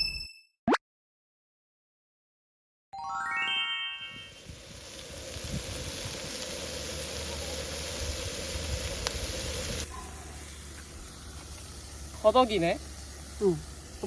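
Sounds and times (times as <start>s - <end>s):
meat sizzling on a grill: 4.3s - 14.0s.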